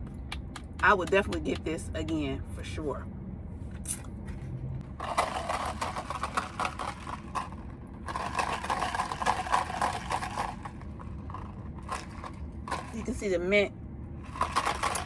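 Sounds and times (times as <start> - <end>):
crackling handling rattle: 5.0 - 13.2, 14.2 - 15.0.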